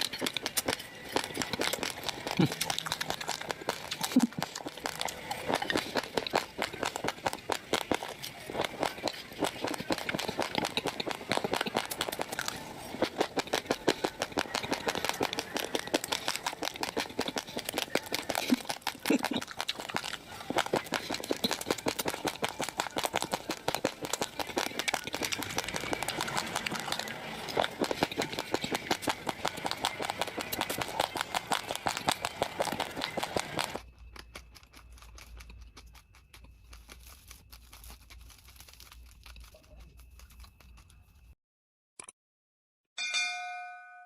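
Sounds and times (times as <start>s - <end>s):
chewing raw rice crunches: 0.0s - 41.4s.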